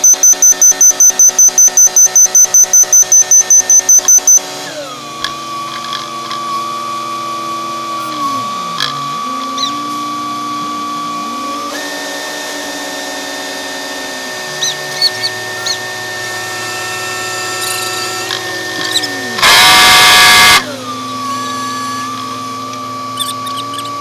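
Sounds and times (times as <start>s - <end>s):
road-paving machinery whining: 1.0s - 24.0s
very loud burst: 19.4s - 20.7s.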